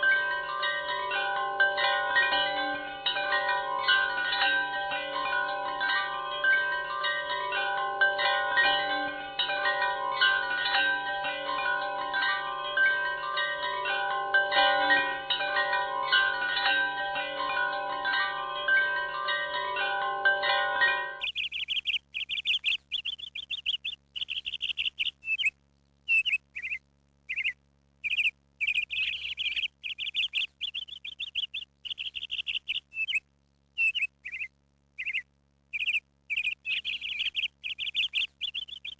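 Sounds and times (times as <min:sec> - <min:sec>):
wind chimes ringing: 0:00.0 - 0:21.3
small bird chirping: 0:21.2 - 0:38.9.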